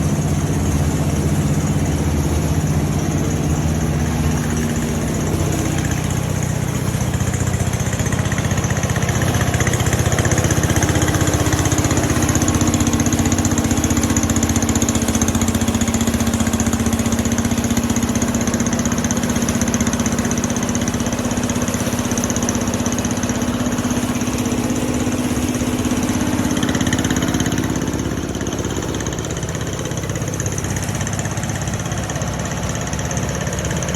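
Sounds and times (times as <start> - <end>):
rice mill motor hum: 0.0 - 33.9.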